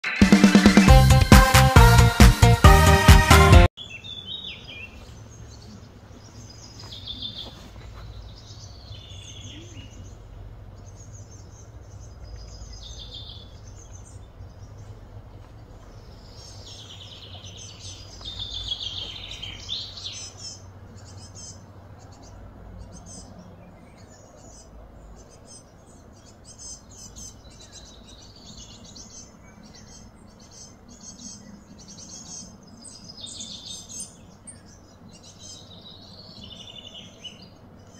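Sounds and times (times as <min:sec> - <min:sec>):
birds chirping: 0:00.0 - 0:37.9
steady low hum: 0:07.7 - 0:28.2.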